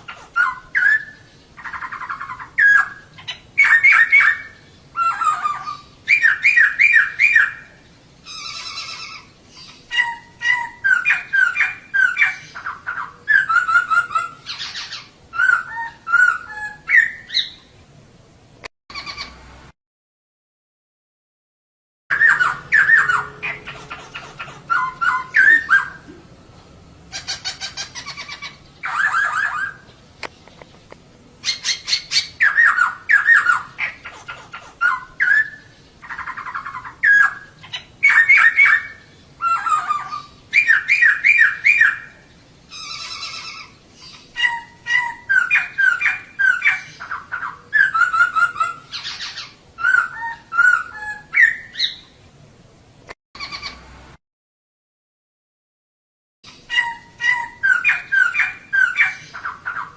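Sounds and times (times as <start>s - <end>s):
bird chattering call: 8.3s - 17.6s, 18.9s - 19.4s, 22.1s - 26.1s, 27.1s - 29.8s, 31.4s - 52.1s, 53.4s - 53.8s.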